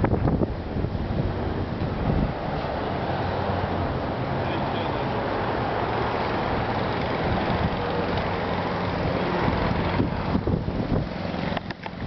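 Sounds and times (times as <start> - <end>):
wind on microphone: 0.0 - 3.9, 6.4 - 8.3, 8.9 - 12.0
vehicle engine humming: 0.0 - 12.0.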